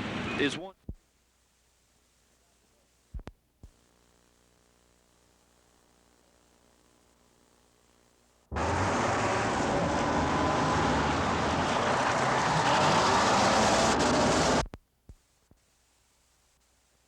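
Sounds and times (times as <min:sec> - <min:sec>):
vehicle engine and tyres: 0:08.5 - 0:14.7.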